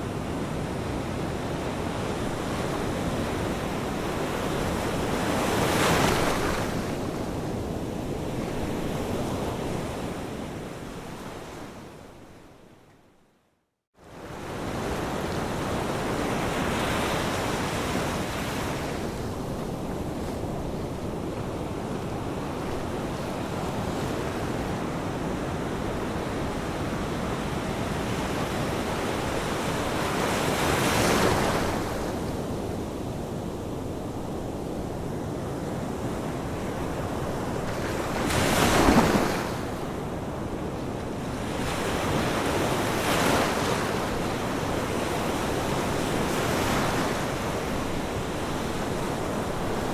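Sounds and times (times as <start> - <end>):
ocean waves rushing: 38.0 - 39.8.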